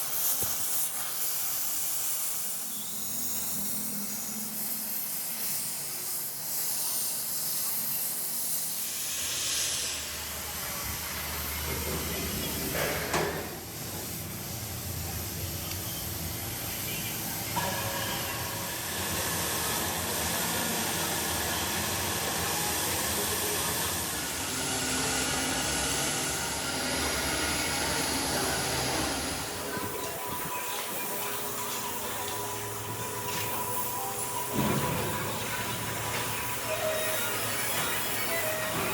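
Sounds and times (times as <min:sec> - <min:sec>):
machinery hissing: 0:00.0 - 0:38.9
steady machine hum: 0:08.9 - 0:38.9.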